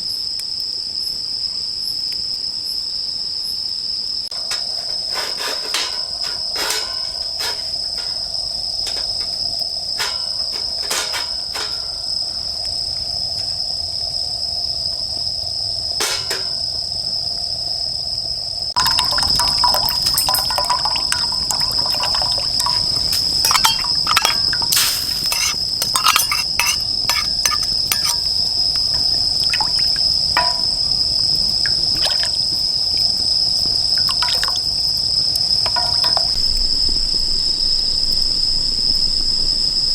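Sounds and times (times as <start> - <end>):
crickets chirping: 0.0 - 39.9
fire crackling and popping: 18.8 - 37.4.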